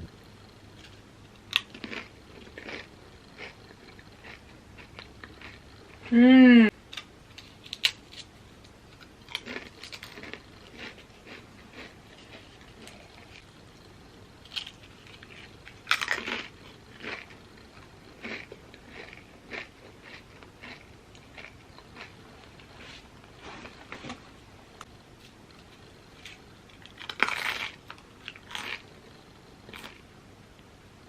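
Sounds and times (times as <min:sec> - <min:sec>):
chewing crunches: 0:00.8 - 0:06.1, 0:09.0 - 0:13.4, 0:14.4 - 0:23.0, 0:26.2 - 0:30.0
chips crunching bites: 0:01.5 - 0:03.6, 0:09.2 - 0:13.0, 0:14.4 - 0:17.4, 0:18.2 - 0:22.1, 0:26.2 - 0:28.9.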